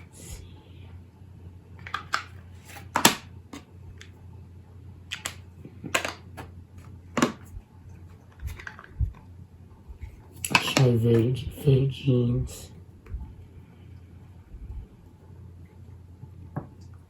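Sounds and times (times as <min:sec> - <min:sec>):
plastic cases clicking: 0:08.3 - 0:09.0.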